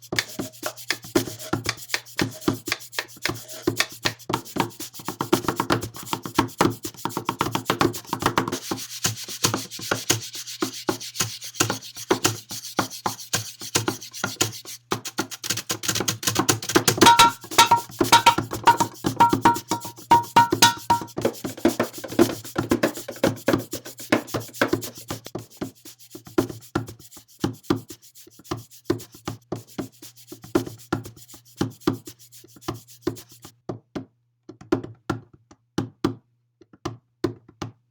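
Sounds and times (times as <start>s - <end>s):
quick taps and knocks: 15.2s - 25.2s.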